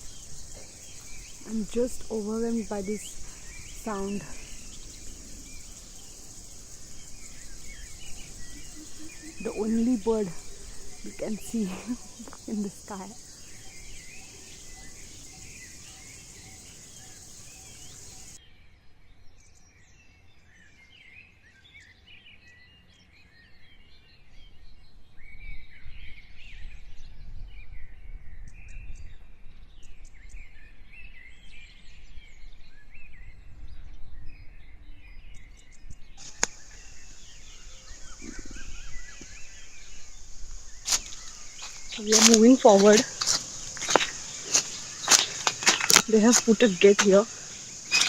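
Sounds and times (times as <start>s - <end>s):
high-pitched insect drone: 0.0s - 18.4s, 36.2s - 48.0s
wild birds chirping: 0.0s - 18.4s, 36.1s - 48.0s
click: 36.4s - 36.6s.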